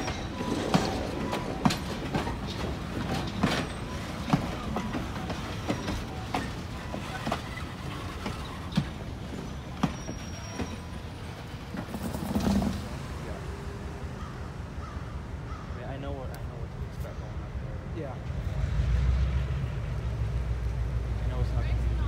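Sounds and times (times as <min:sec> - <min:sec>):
wheels clicking over rail joints: 0:00.0 - 0:13.7
train rumble: 0:00.0 - 0:22.0.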